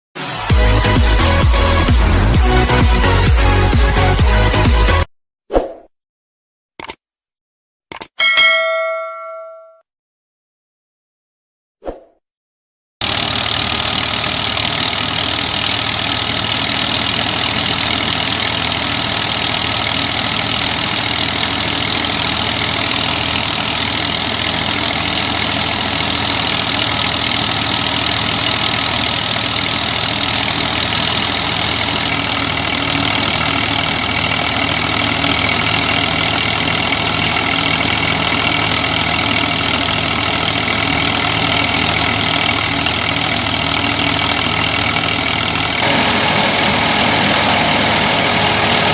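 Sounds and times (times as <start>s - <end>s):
tractor diesel engine under load: 0.2s - 5.1s, 13.0s - 48.9s
thresher whirring: 13.0s - 48.9s.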